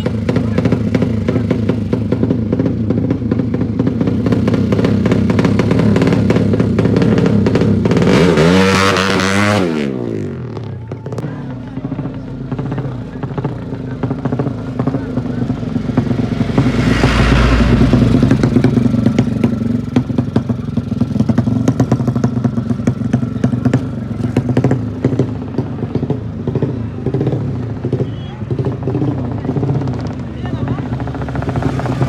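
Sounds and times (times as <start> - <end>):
motorcycle engine running: 0.0 - 32.0
rush of noise: 15.7 - 19.5.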